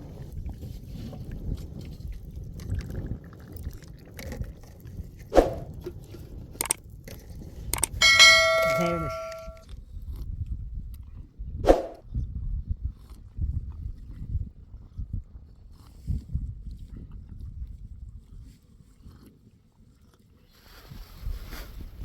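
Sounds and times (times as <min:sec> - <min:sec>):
metal object clanging: 0:07.8 - 0:09.6
sharp knocks: 0:07.8 - 0:09.6.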